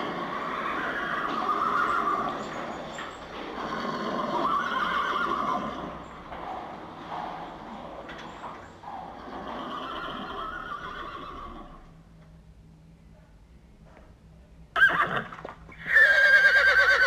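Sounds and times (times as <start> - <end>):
horse neighing: 0.3 - 2.6, 3.5 - 6.0, 9.3 - 11.8, 14.8 - 17.0.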